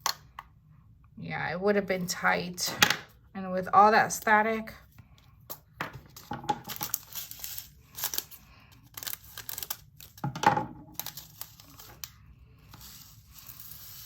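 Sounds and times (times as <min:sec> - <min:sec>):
plastic bag crinkling: 0:06.1 - 0:10.3, 0:10.9 - 0:14.0
small beads poured into container: 0:12.7 - 0:14.0.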